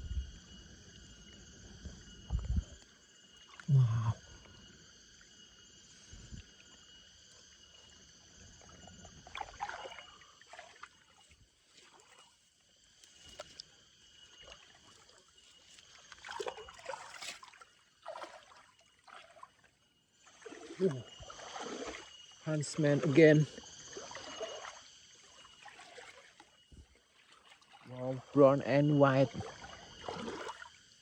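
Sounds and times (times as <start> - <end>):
insect chorus: 0.0 - 31.0
water sloshing: 9.2 - 13.6, 14.4 - 30.8.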